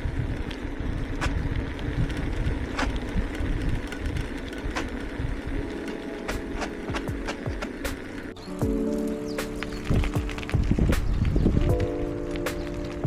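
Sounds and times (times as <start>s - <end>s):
bicycle tyre rumble on road: 0.0s - 13.0s
wind buffeting microphone: 0.0s - 13.0s.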